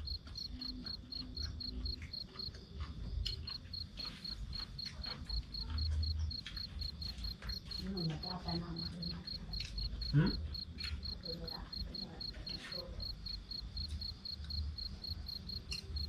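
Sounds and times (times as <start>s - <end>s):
cricket chirping: 0.0s - 16.0s.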